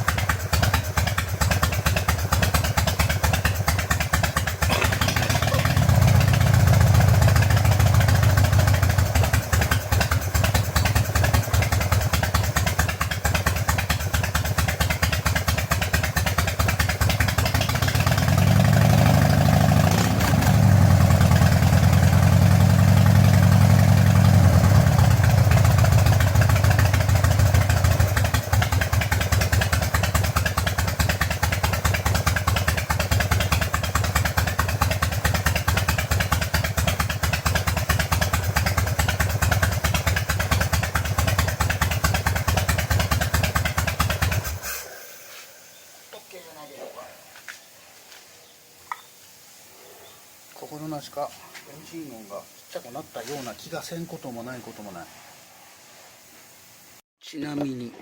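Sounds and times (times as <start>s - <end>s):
motorcycle engine idling and revving: 0.0s - 46.0s.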